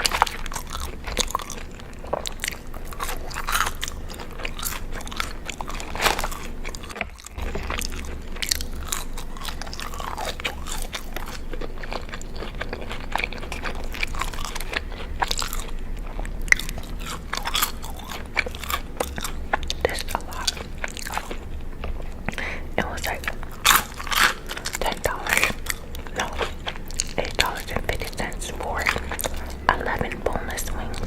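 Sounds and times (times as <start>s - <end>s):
crunchy chewing: 0.0s - 31.0s.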